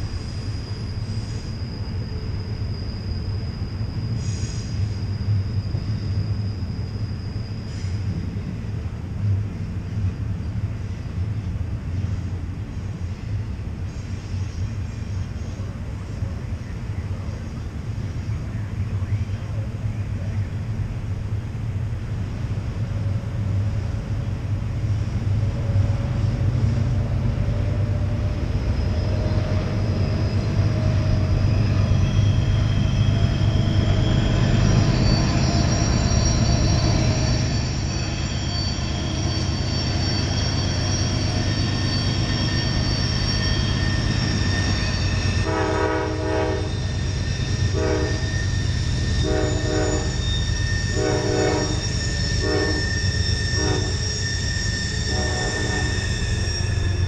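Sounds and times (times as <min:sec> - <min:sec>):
wheel flanges squealing: 0:00.0 - 0:08.9, 0:22.7 - 0:57.0
diesel locomotives rumbling: 0:00.0 - 0:57.0
locomotive horn blasts: 0:45.4 - 0:46.8, 0:47.7 - 0:48.3, 0:49.2 - 0:50.2, 0:50.9 - 0:52.9, 0:53.6 - 0:54.0, 0:55.1 - 0:56.1.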